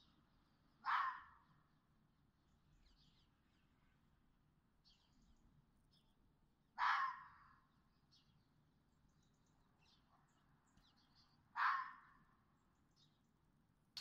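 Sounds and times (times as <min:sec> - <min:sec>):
faint small-bird chirps: 0:00.0 - 0:01.7, 0:02.4 - 0:04.1, 0:04.8 - 0:13.4
fox barking: 0:00.8 - 0:01.4, 0:06.8 - 0:07.5, 0:11.6 - 0:12.2.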